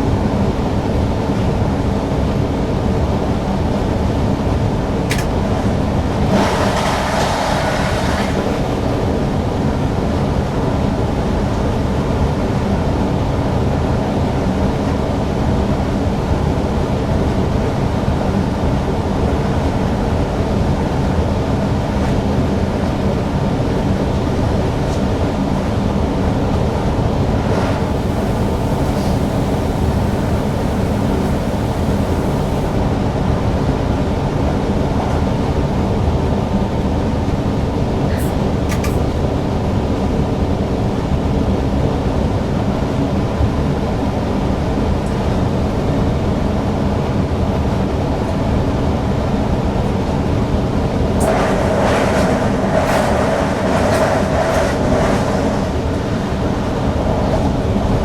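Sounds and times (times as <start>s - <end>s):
train wheels rumbling on rails: 5.0s - 12.8s, 13.5s - 33.0s, 37.1s - 40.8s, 49.8s - 58.0s.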